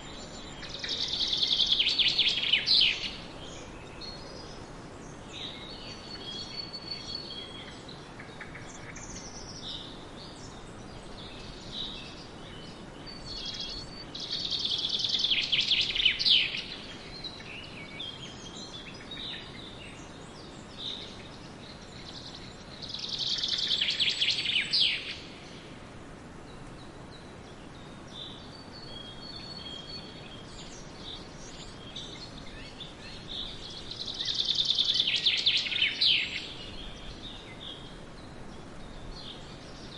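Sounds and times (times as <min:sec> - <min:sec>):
birds chirping: 0:00.0 - 0:39.9
steady hiss: 0:00.0 - 0:39.9.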